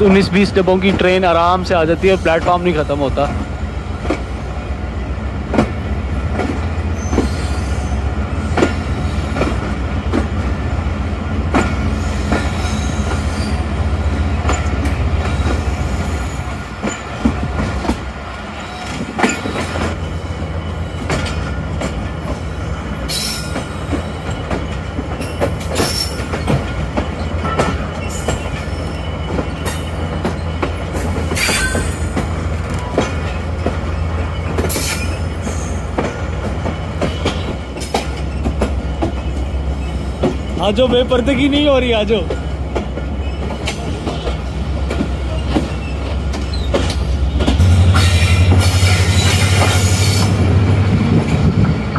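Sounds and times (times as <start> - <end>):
train wheels clicking over rail joints: 0.0 - 4.6, 5.3 - 51.9
diesel locomotive drone: 0.0 - 51.9
high wheel squeals: 6.9 - 9.4, 11.9 - 13.6, 22.5 - 32.2, 33.9 - 41.3, 42.4 - 50.5.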